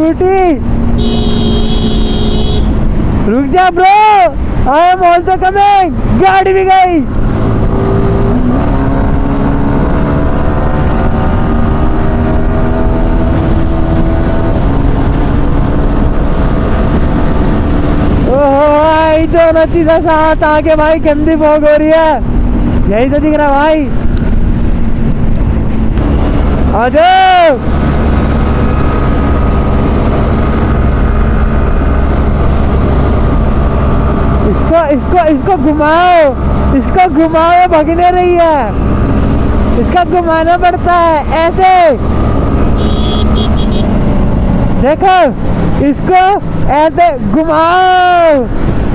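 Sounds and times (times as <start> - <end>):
motorcycle engine cruising: 0.0 - 3.6, 6.9 - 48.9
wind noise on microphone: 6.9 - 35.6, 38.5 - 48.9.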